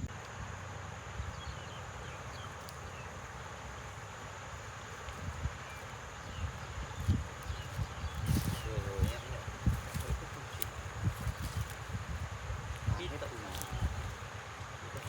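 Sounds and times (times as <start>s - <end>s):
insect hiss drone: 0.0s - 15.0s
wind rumble on microphone: 5.1s - 15.0s.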